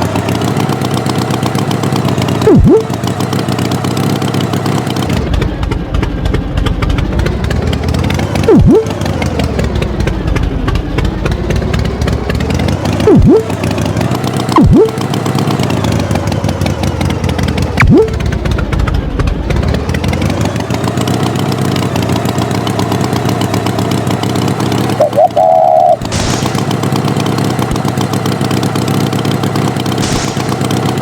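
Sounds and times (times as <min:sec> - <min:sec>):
tractor engine running: 0:00.0 - 0:31.0
loud swooping sounds: 0:02.5 - 0:02.9.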